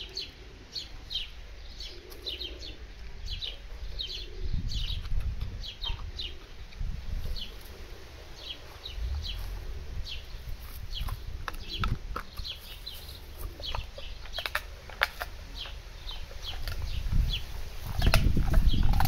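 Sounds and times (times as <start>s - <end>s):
birds chirping: 0.0s - 19.0s
low rumble: 3.2s - 12.1s.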